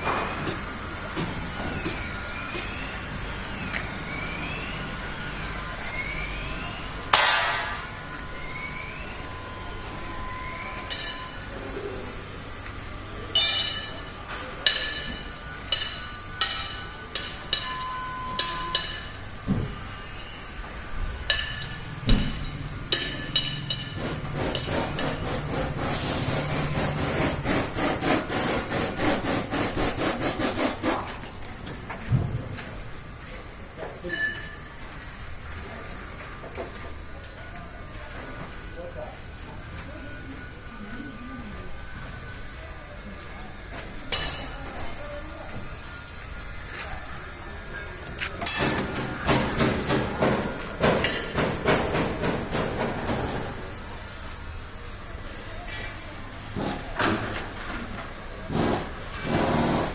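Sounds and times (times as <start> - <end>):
sawing or rasping strokes: 24.0 - 31.1.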